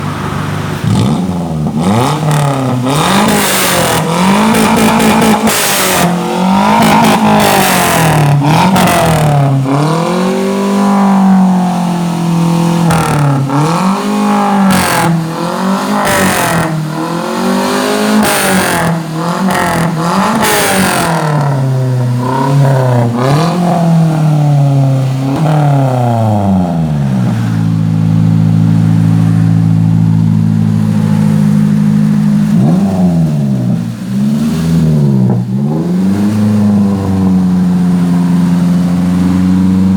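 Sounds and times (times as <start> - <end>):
car engine idling: 0.0 - 39.9
car engine revving: 0.0 - 39.9.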